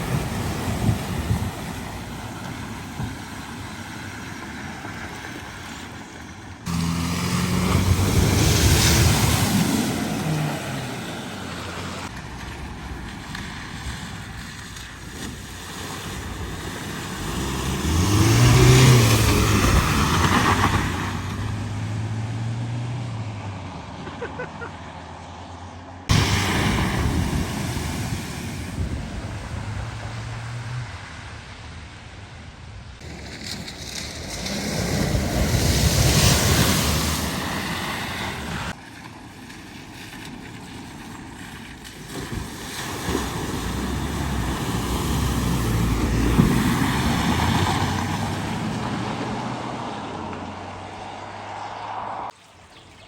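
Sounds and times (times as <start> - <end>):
car engines running: 0.0 - 52.4
water hissing and splashing: 6.7 - 12.1, 26.1 - 30.1, 39.8 - 48.6.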